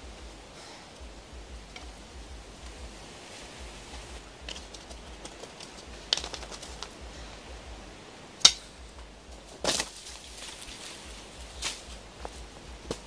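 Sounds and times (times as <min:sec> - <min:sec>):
wooden sticks clicking together: 0:03.9 - 0:07.2, 0:08.4 - 0:08.8
sharp crack of wood: 0:04.5 - 0:07.0, 0:09.6 - 0:10.8
crunch of dry leaves: 0:09.4 - 0:13.0.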